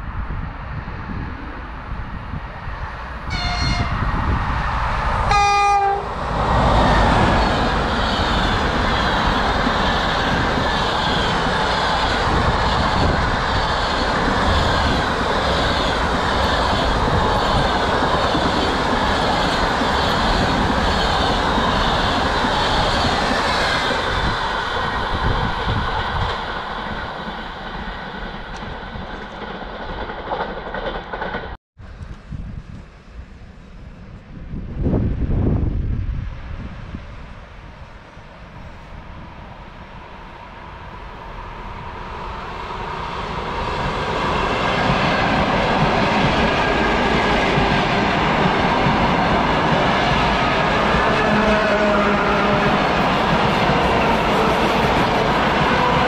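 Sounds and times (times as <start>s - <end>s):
train passing with rhythmic clatter: 0.0s - 56.0s
train horn blasts: 3.3s - 4.0s, 5.3s - 6.2s, 51.2s - 52.8s.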